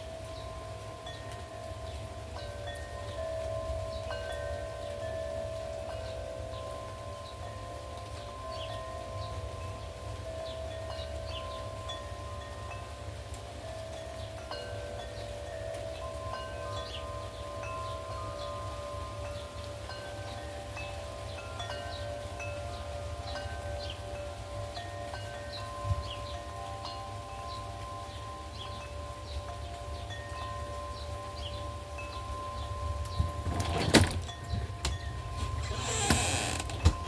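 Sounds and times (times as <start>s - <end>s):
wind chimes ringing: 0.0s - 37.0s
wind rumble on microphone: 32.4s - 37.0s.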